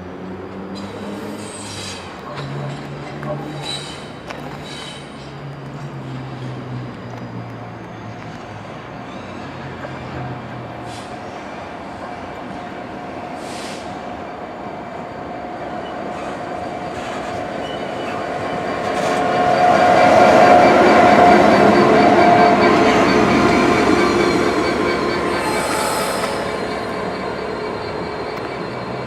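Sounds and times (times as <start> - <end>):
train whine: 18.4 - 29.0
train wheels rumbling: 18.8 - 29.0.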